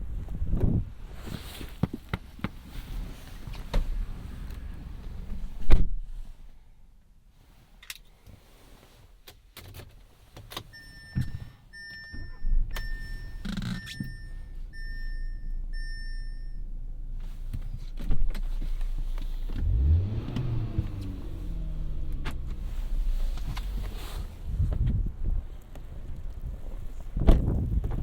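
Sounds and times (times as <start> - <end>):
car engine starting and revving: 2.6 - 5.8, 12.5 - 25.6
dashboard warning chime: 10.7 - 17.2.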